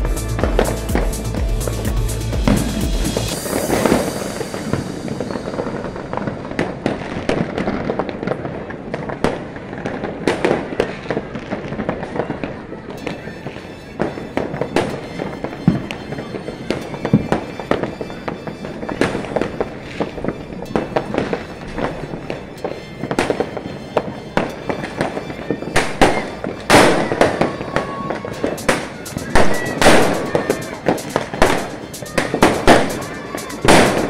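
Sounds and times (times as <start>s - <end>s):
firecrackers popping: 0.0s - 34.0s
loud firework booms: 25.8s - 34.0s.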